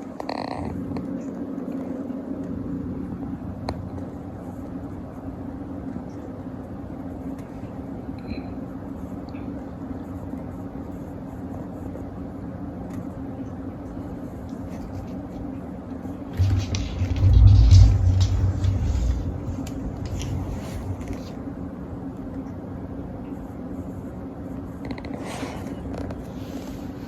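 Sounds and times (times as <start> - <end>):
low rumbling hum: 14.7 - 22.6.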